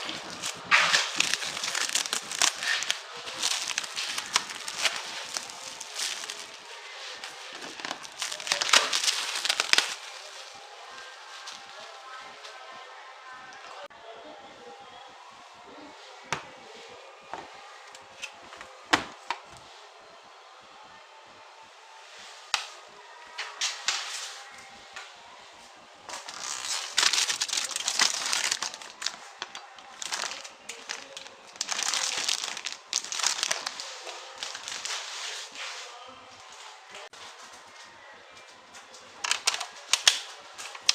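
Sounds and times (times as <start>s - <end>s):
plastic wrap crinkling and tearing: 0.0s - 12.2s, 26.1s - 35.6s, 39.2s - 40.9s
packaging clicks and snaps: 39.2s - 40.9s.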